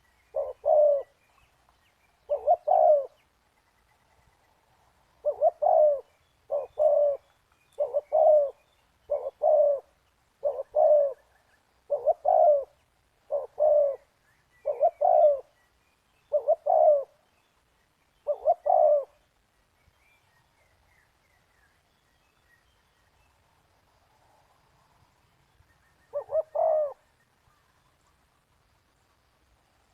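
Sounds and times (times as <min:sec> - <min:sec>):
dove cooing: 0:00.0 - 0:01.2, 0:02.2 - 0:03.2, 0:05.2 - 0:15.6, 0:16.2 - 0:17.2, 0:18.2 - 0:19.2, 0:26.1 - 0:27.0.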